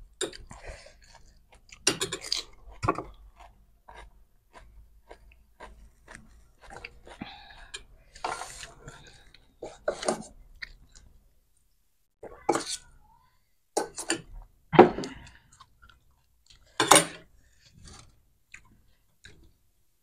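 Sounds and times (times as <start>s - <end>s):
crunchy chewing: 0.1s - 11.1s.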